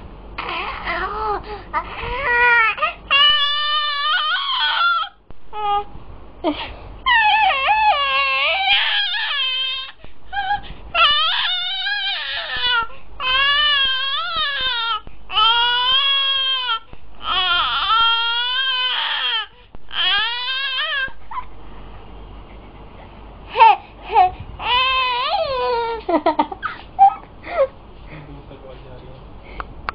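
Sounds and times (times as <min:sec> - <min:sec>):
baby crying: 0:00.4 - 0:05.9, 0:07.1 - 0:21.5, 0:23.5 - 0:26.0.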